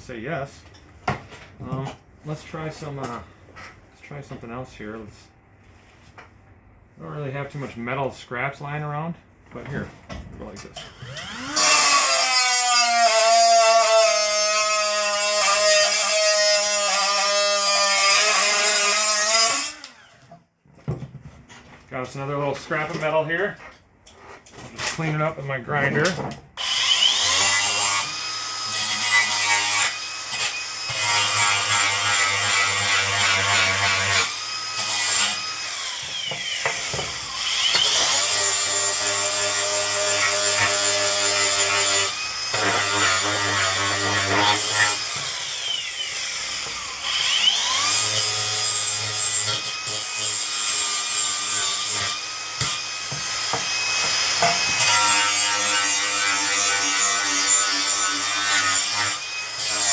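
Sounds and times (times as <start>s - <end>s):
electric grinder grinding metal: 11.0s - 20.0s, 26.6s - 59.9s.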